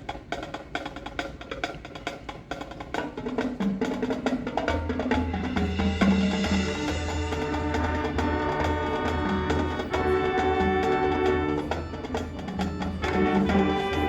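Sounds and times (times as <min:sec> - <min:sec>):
percussion ticking pulse: 0:05.4 - 0:14.0
low brass: 0:05.6 - 0:14.0.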